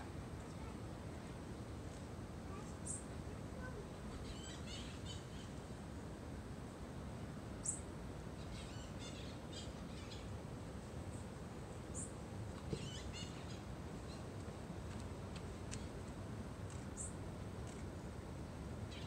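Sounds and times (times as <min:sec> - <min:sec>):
outdoor background hiss: 0:00.0 - 0:19.0
birds chirping: 0:02.6 - 0:05.8, 0:07.6 - 0:10.4, 0:11.1 - 0:14.4, 0:16.7 - 0:17.2
sharp high bird calls: 0:04.2 - 0:05.6, 0:12.7 - 0:13.7.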